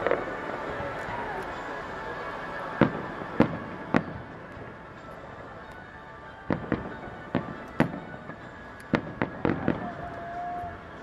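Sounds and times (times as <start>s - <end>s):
music playing: 0.0s - 11.0s.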